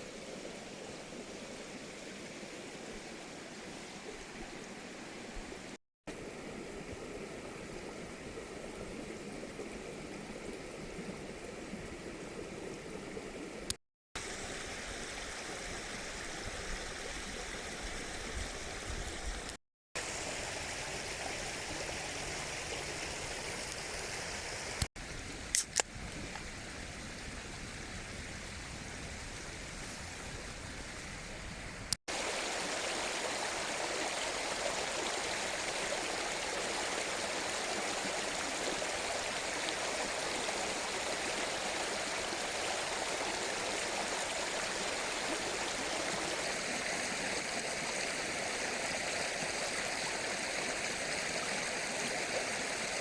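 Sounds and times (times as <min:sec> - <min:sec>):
stream water rushing: 0:00.0 - 0:24.9, 0:32.1 - 0:53.0
sharp clicks: 0:25.6 - 0:25.9.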